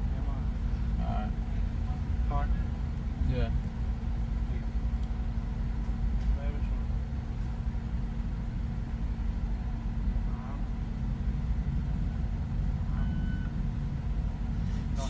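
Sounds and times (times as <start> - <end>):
short beep: 13.0 - 13.5.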